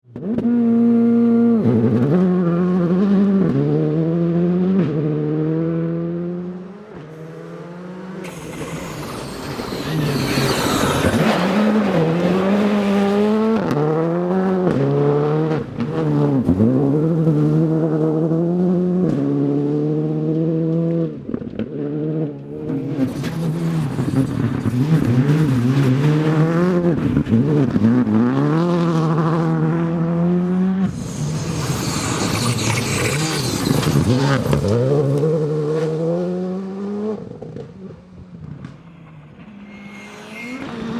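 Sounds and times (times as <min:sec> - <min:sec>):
rally car engine accelerating: 0:00.1 - 0:40.9
hissing noise: 0:07.0 - 0:12.6, 0:30.8 - 0:35.2.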